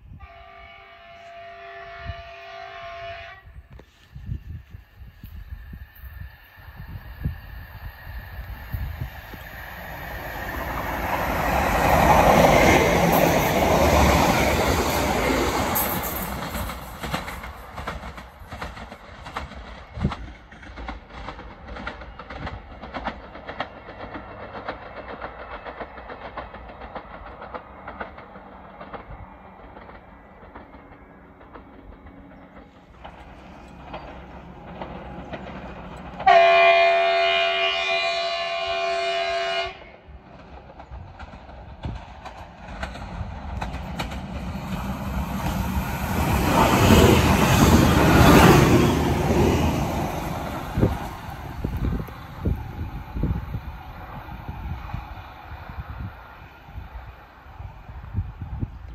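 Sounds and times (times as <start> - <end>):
train running past: 0.0 - 58.9
train horn chord: 0.1 - 3.9, 36.2 - 40.0.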